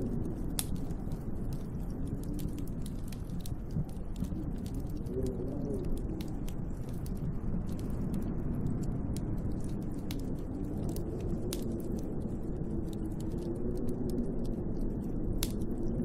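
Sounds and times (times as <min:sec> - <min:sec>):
light ticks and clicks: 0:00.0 - 0:16.0
wind howling: 0:00.0 - 0:16.0.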